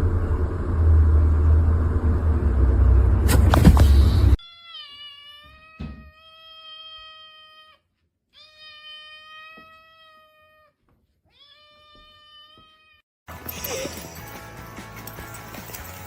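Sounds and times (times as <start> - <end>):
cat meowing: 4.4 - 13.0.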